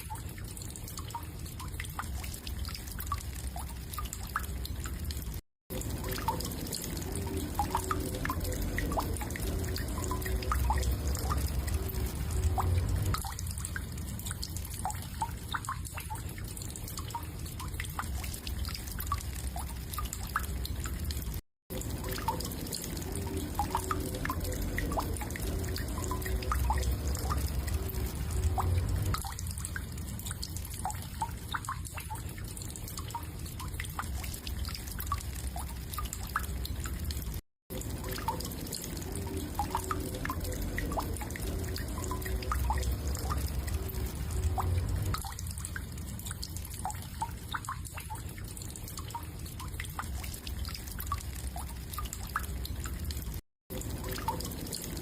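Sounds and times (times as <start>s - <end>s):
low hum: 5.8s - 14.5s, 22.1s - 30.7s, 38.2s - 46.2s.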